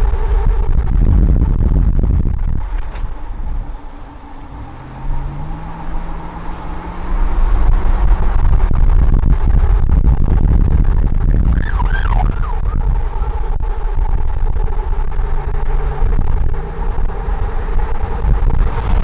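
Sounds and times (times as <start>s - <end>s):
wind rumbling on microphone: 0.0s - 19.0s
siren wailing: 11.2s - 14.5s.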